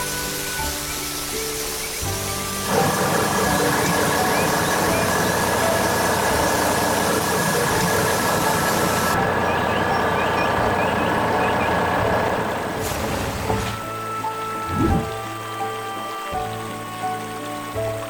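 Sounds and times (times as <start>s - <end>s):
heavy vehicle engine running: 2.5s - 13.6s.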